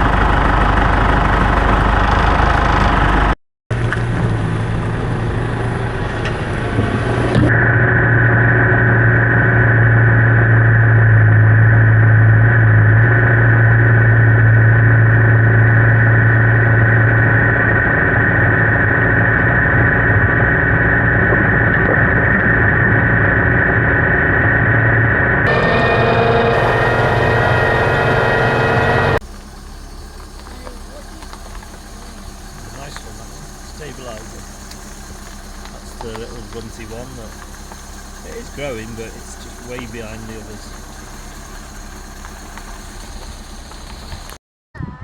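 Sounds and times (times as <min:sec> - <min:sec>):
tractor engine running: 0:00.0 - 0:44.4
steady high whine: 0:03.8 - 0:44.4.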